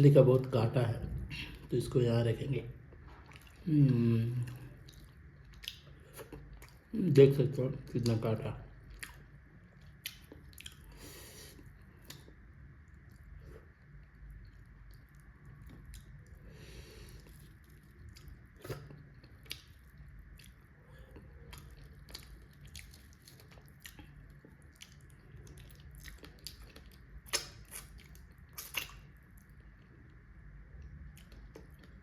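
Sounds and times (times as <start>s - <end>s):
person chewing food: 2.8s - 3.7s, 4.3s - 6.9s, 8.0s - 32.0s
wet mouth clicks and smacks: 25.8s - 29.2s.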